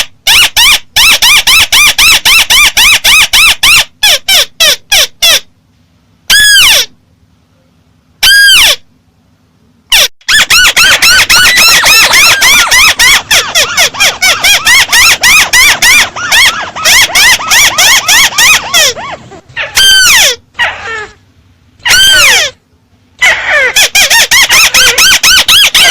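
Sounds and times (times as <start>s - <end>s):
harsh bird calls: 10.3s - 21.1s.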